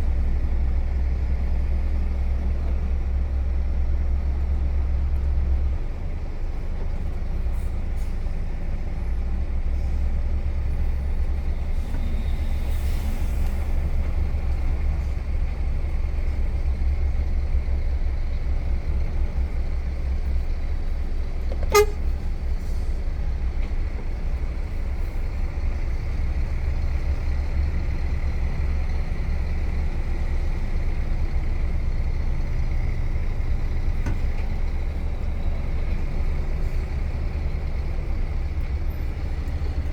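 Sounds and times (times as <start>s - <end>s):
truck diesel engine rumbling: 0.0s - 39.9s.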